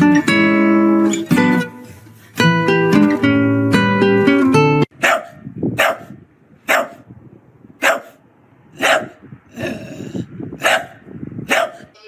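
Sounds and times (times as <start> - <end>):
dog barking: 4.9 - 7.1, 7.8 - 9.8, 10.6 - 12.0.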